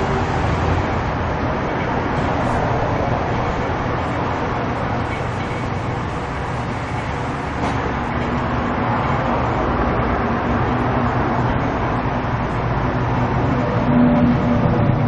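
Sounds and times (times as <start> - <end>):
machine running: 0.0 - 8.9.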